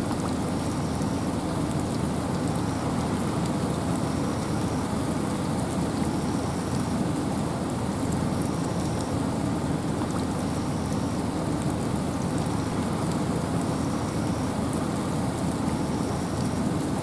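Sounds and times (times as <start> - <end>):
raindrop ticks: 0.0 - 4.1, 9.8 - 14.0
wind and rain hiss: 0.0 - 17.0.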